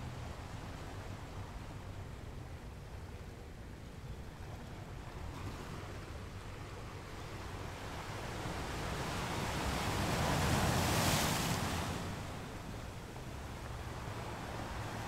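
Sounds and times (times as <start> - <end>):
ocean wave washing: 8.0 - 15.0.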